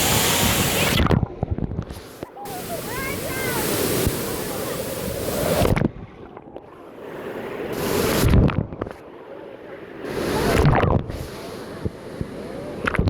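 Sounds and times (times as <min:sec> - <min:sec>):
water surging and splashing: 0:00.0 - 0:01.2, 0:02.2 - 0:06.4.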